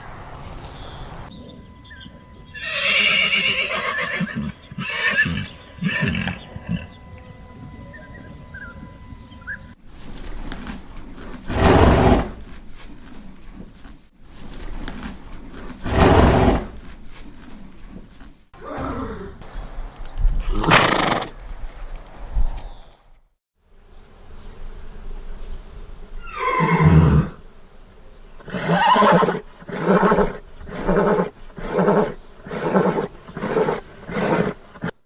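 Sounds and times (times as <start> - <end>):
horses neighing: 1.8 - 8.1, 20.4 - 21.4, 26.2 - 27.4, 28.5 - 34.9.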